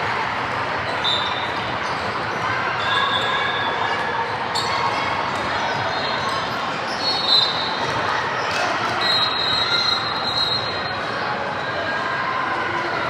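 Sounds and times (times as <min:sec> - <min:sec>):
crowd chatter: 0:00.0 - 0:13.0
sneaker squeaks: 0:00.8 - 0:11.0.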